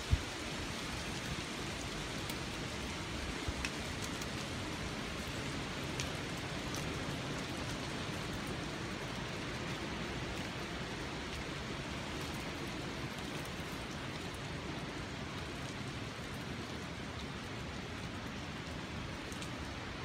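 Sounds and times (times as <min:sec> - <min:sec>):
light ticks: 0:03.6 - 0:04.4, 0:05.9 - 0:07.0.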